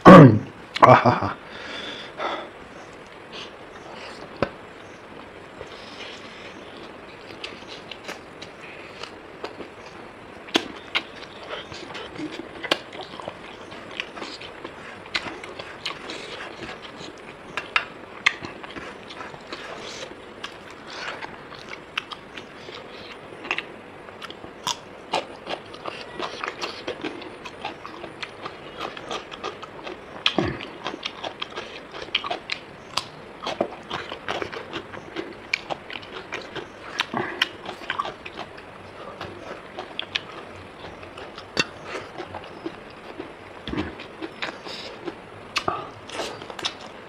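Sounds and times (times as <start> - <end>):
close-up chewing: 2.8 - 47.0.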